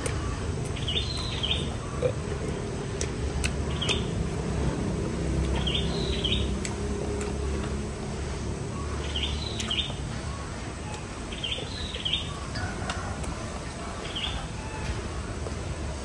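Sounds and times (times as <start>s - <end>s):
bird chirping: 0.1s - 2.2s, 3.7s - 4.2s, 5.4s - 6.6s, 8.7s - 12.7s, 14.0s - 15.0s.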